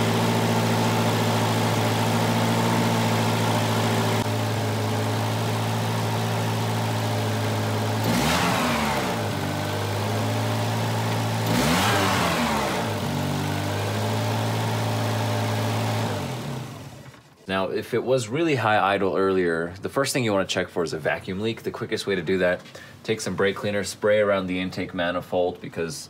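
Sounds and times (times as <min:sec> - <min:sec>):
car engine idling unevenly: 0:00.0 - 0:08.0.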